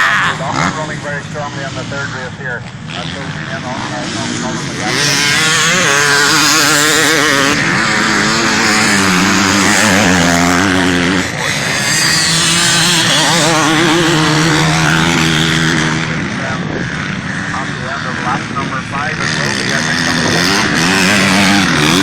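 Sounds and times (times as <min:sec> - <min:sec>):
motocross bikes revving past: 0:00.0 - 0:22.0.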